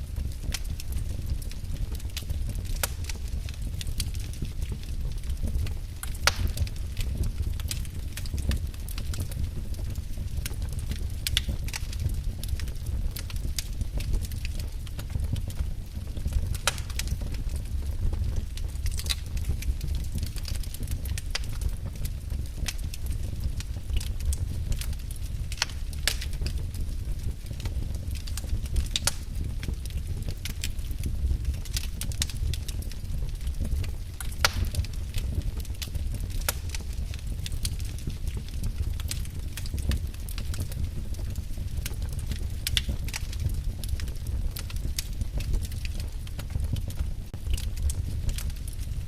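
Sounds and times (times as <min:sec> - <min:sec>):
fire crackling and popping: 0:00.0 - 0:49.0
fire flames rumbling: 0:00.0 - 0:49.0.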